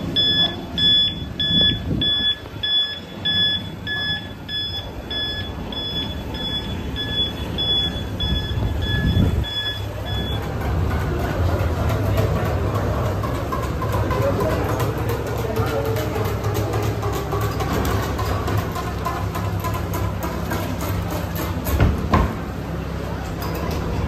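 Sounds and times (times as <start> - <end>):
reversing alarm beeping: 0.0 - 10.7
low engine rumble: 0.0 - 24.0.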